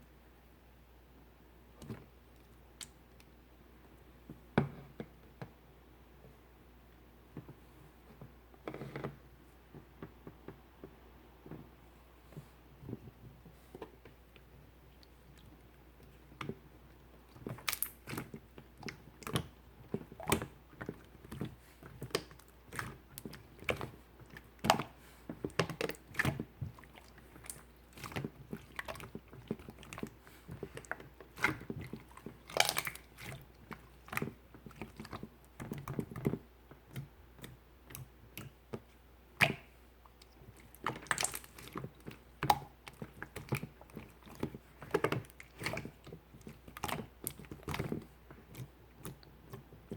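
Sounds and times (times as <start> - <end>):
slime squishing wet clicks: 17.4 - 49.6.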